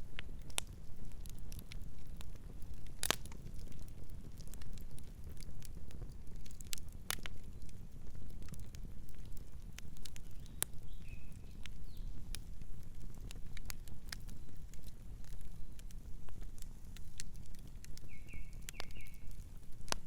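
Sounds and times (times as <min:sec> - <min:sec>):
campfire crackling and popping: 0:00.0 - 0:20.0
low rumble of flame: 0:00.0 - 0:20.0
faint bird chirp: 0:10.3 - 0:12.2, 0:18.0 - 0:19.4.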